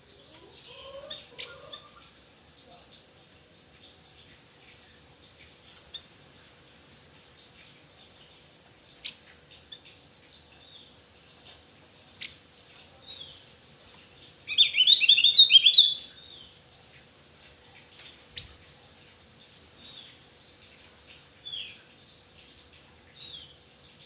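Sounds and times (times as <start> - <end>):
soft downslurred bird calls: 14.4 - 16.6
bird singing high chirps: 14.5 - 16.5.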